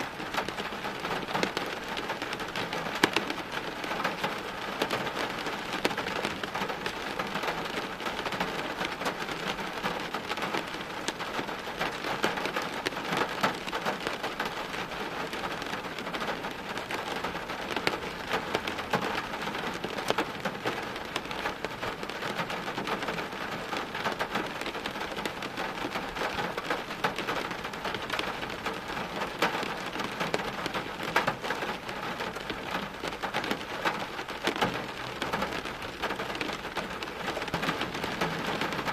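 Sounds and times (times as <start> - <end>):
rain on hard surfaces: 0.0 - 38.9.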